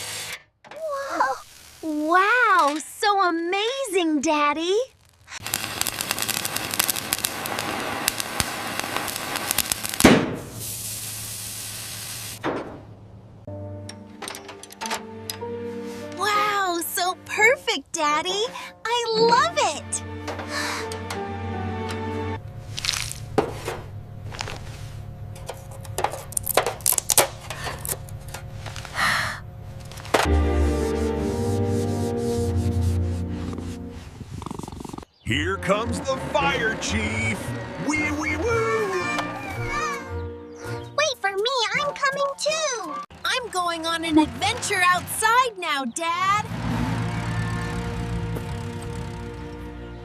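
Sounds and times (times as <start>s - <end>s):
dense crackling: 1.0s - 2.8s, 4.6s - 13.2s, 32.7s - 40.0s
steady hiss: 1.1s - 2.2s, 5.0s - 12.4s
steady low hum: 20.0s - 34.4s.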